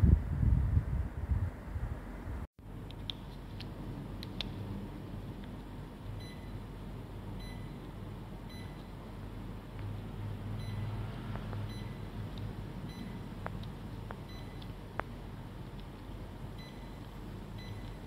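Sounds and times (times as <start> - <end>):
steady low hum: 0.0 - 18.0
short electronic beeps: 10.6 - 11.0, 11.6 - 12.1, 12.9 - 13.2, 14.3 - 14.6, 16.6 - 17.0, 17.6 - 18.0.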